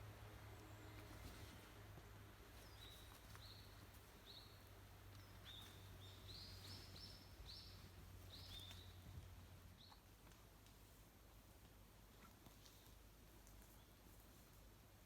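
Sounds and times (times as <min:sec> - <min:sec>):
faint low hum: 0:00.0 - 0:15.0
bird chirping faintly: 0:02.5 - 0:10.2.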